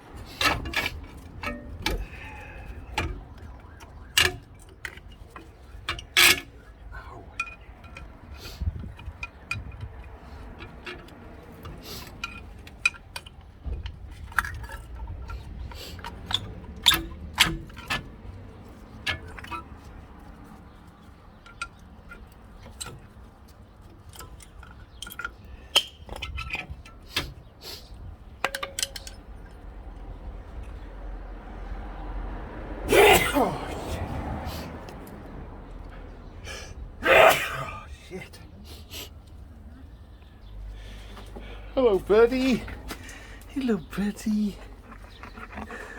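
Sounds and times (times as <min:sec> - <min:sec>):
metal tools and brake parts clinking: 0:00.0 - 0:30.8.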